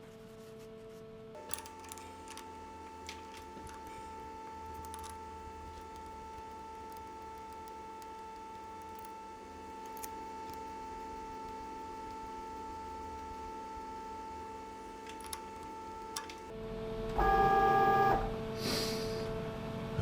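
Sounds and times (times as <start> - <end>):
light metal clicks: 1.4 - 16.5
machine tool motor whine: 1.4 - 16.6.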